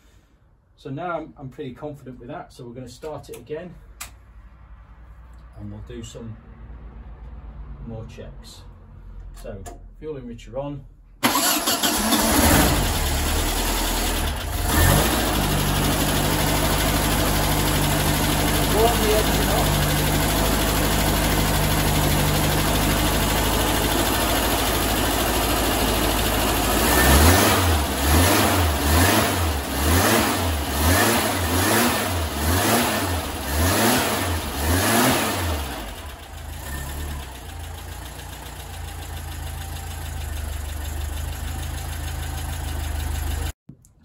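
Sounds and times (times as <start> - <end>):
engine idling and revving: 11.2 - 43.6.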